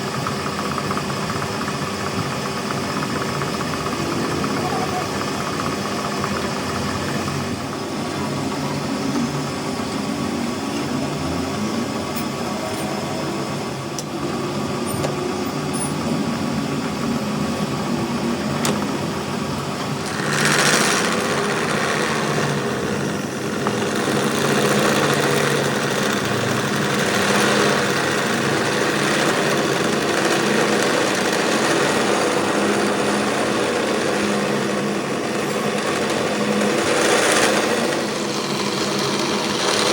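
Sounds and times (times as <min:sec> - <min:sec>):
small machine running: 0:00.0 - 0:39.9.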